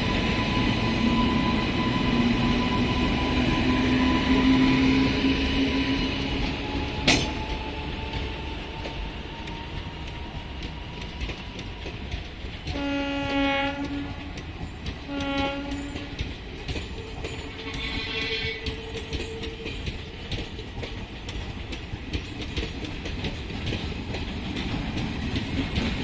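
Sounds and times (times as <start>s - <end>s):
freight train rolling over rails: 0.0s - 26.0s
train horn: 12.6s - 14.5s, 15.1s - 16.3s, 17.1s - 20.0s.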